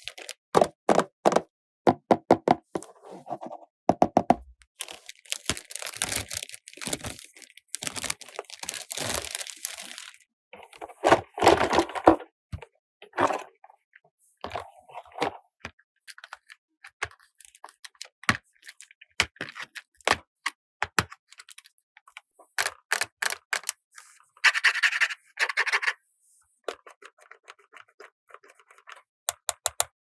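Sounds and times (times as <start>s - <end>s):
plastic toy pieces clicking: 22.6s - 23.8s.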